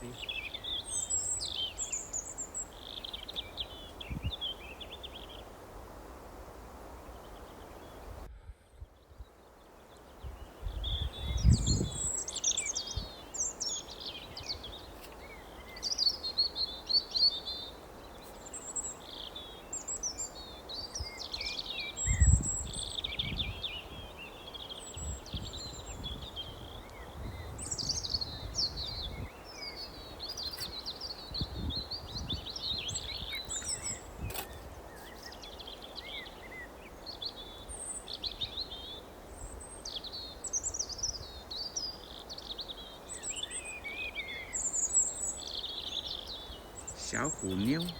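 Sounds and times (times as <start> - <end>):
songbirds chirping: 0.0 - 47.9.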